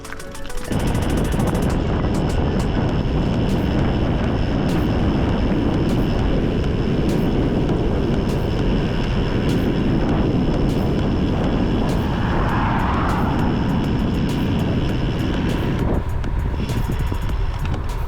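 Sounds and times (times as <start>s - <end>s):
wind roaring over microphone: 0.7s - 18.0s.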